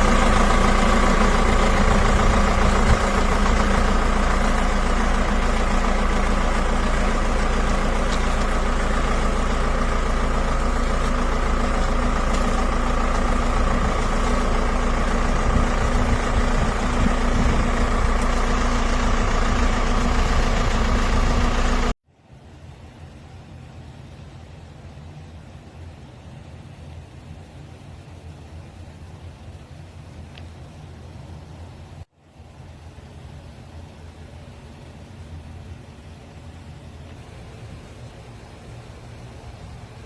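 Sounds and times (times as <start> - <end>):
vehicle engine idling: 0.0 - 22.0, 32.4 - 40.0.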